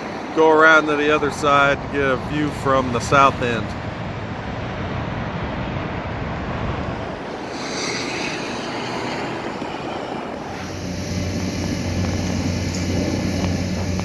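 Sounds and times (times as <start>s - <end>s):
road traffic noise: 0.0s - 14.0s
vehicle passing close by: 3.7s - 14.0s.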